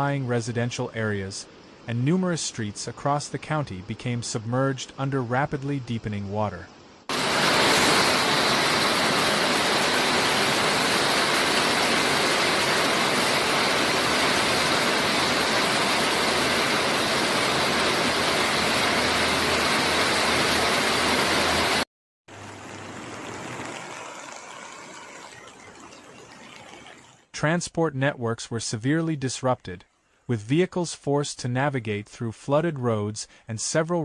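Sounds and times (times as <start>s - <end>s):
floodwater rushing: 7.1s - 27.3s.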